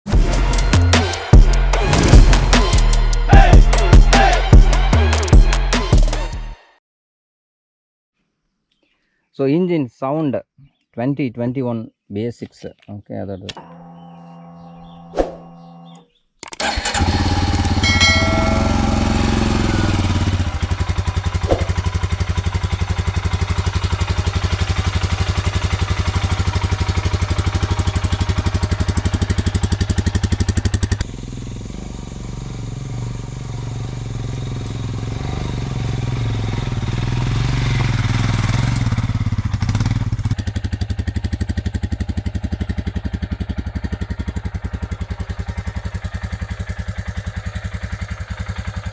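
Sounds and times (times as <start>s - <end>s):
motorcycle engine starting: 0.1s - 5.5s, 13.4s - 48.9s
motorcycle engine idling: 16.6s - 48.9s.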